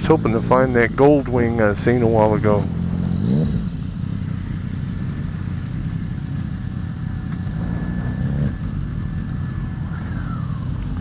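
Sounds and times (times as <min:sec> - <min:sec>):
motorcycle engine revving: 0:00.0 - 0:11.0
motorcycle engines droning: 0:00.0 - 0:11.0.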